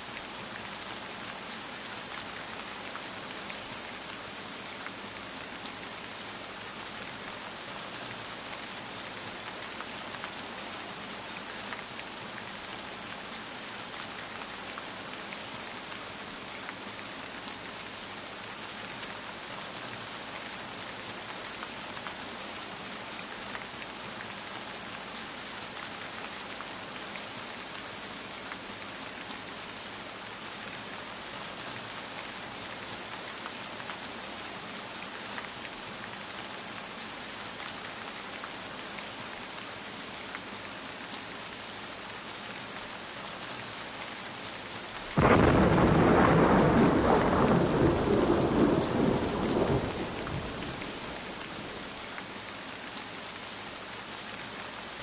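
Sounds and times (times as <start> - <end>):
steady rain falling: 0.0 - 55.0
thunder clap: 45.2 - 51.5.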